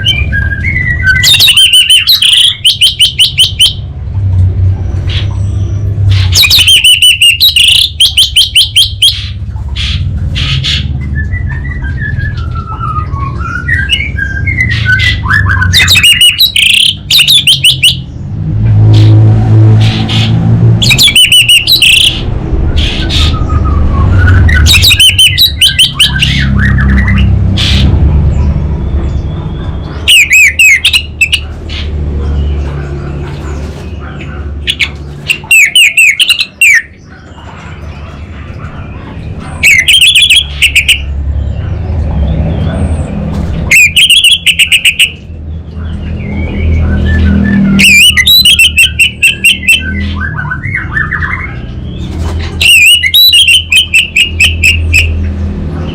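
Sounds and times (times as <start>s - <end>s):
thrush singing: 0.0s - 3.9s, 19.8s - 27.9s.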